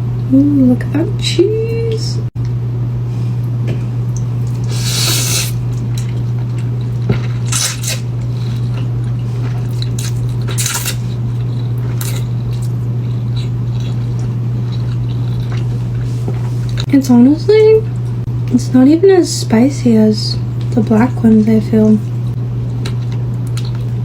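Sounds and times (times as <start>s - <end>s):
steady low hum: 0.0s - 24.0s
wet chewing: 4.1s - 16.9s, 22.0s - 24.0s
noodle slurping: 4.5s - 5.7s, 7.3s - 8.7s.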